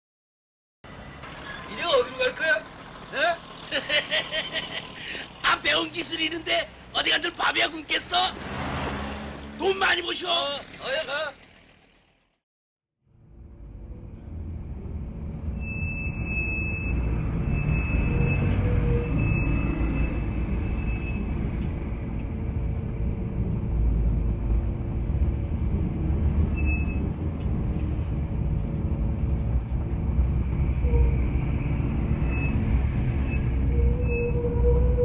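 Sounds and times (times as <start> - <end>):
large vehicle rumbling: 0.9 - 12.4, 13.1 - 35.0
high squeals: 15.3 - 22.2, 26.1 - 28.0, 30.2 - 35.0.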